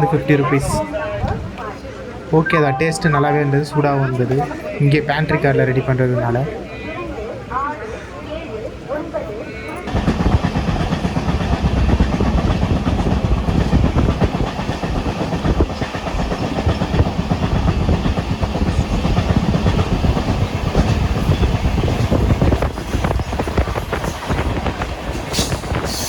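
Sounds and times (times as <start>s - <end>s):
train rattling and clattering: 9.9s - 26.0s
train wheels rumbling on track: 9.9s - 26.0s.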